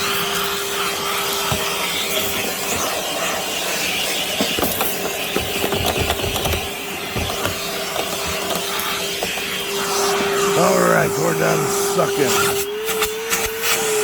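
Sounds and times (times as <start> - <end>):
debris rattling up vacuum hose: 0.0 - 11.1
wet dry vacuum running: 0.0 - 14.0.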